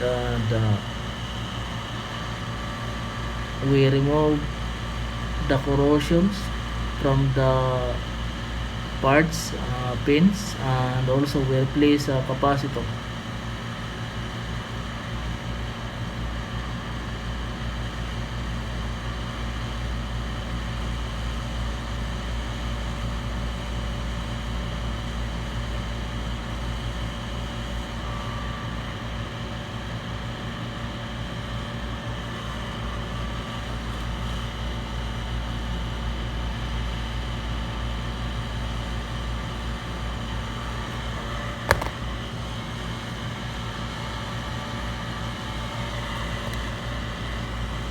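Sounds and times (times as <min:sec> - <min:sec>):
fan-like hiss: 0:00.0 - 0:16.7
low machine hum: 0:00.0 - 0:47.9
sharp click: 0:41.7 - 0:42.0.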